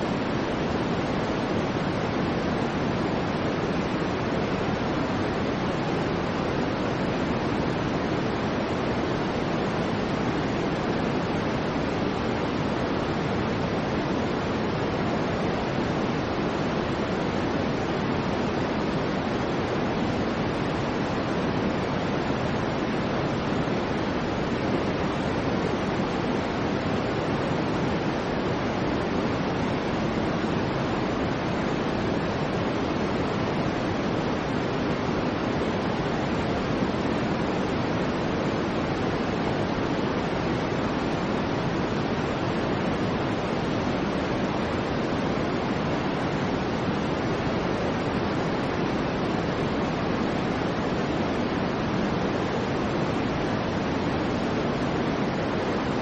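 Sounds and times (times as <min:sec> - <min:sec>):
soft steady low noise: 0:00.0 - 0:56.0.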